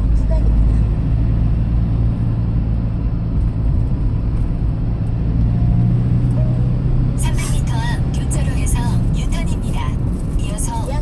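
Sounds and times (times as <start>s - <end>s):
road noise rumble: 0.0s - 11.0s
vehicle engine hum: 0.0s - 11.0s.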